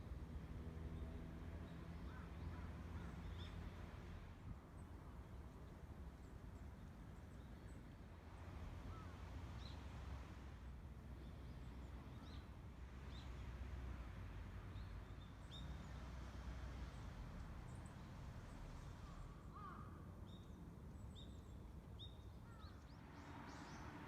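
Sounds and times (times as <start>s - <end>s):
faint bird calls: 19.0s - 20.0s.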